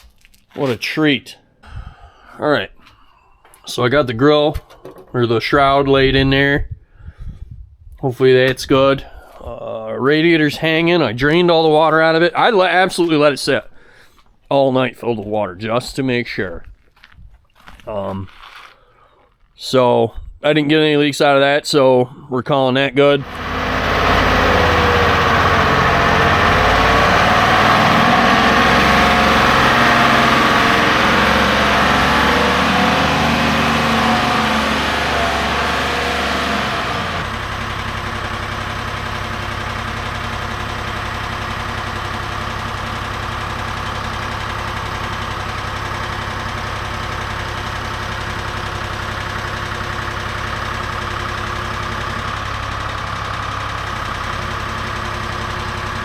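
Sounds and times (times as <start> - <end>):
engine running: 23.2 - 56.0.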